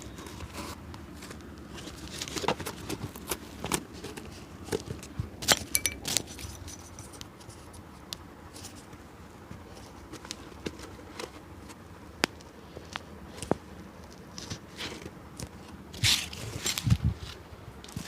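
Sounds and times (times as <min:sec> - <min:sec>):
hand tools clicking and scraping: 0:00.1 - 0:09.0.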